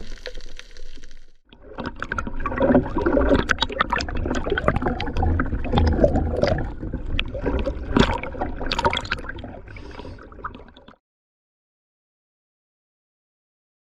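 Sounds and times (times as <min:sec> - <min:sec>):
water sloshing and gurgling: 0:00.0 - 0:11.0.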